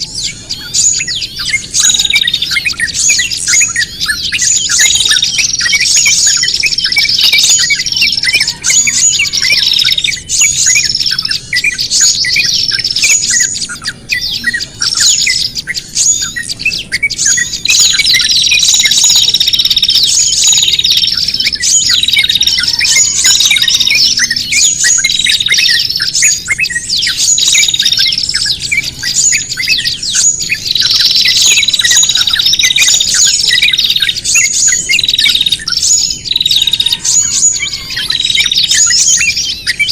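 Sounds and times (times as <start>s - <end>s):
small songbirds chirping and scolding: 0.0s - 39.9s.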